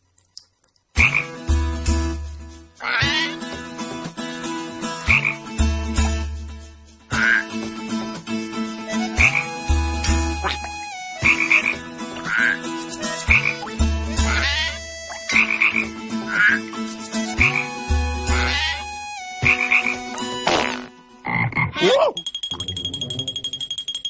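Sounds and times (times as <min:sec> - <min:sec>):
vocal imitation of frog croaks: 0:01.0 - 0:01.4, 0:02.8 - 0:03.4, 0:05.1 - 0:05.4, 0:07.1 - 0:07.5, 0:10.4 - 0:12.6, 0:13.2 - 0:16.7, 0:18.3 - 0:18.8, 0:19.4 - 0:22.2.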